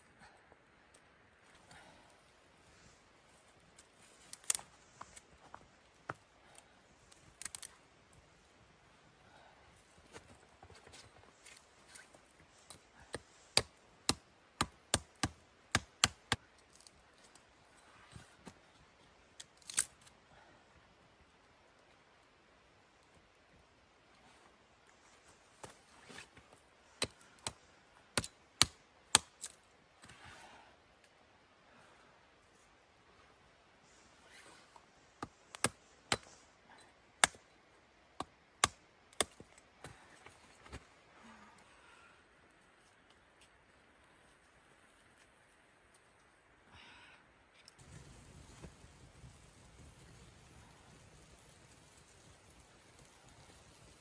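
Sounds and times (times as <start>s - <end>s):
wood fire crackling: 47.8s - 54.0s.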